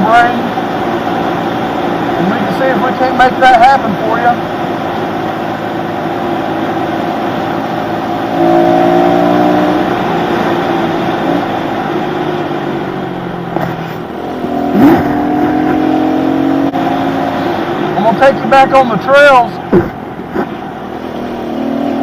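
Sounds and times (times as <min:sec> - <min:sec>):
motorbike engine revving: 0:04.0 - 0:12.4, 0:13.2 - 0:18.4, 0:19.5 - 0:22.0.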